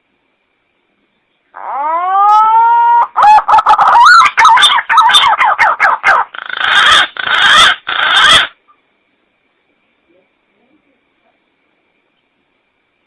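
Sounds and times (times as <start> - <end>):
pigeon lure call whistling: 1.7 - 8.5.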